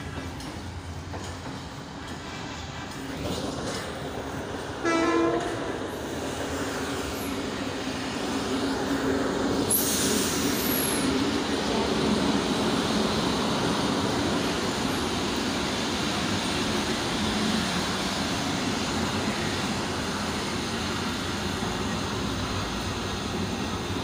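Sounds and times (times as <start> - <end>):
train coaches rumbling past: 0.0 - 24.0
train horn blast: 4.8 - 5.7.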